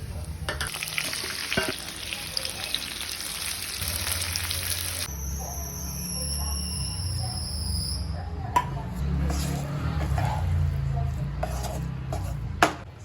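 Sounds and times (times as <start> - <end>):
potatoes sizzling in a pan: 0.7 - 5.1.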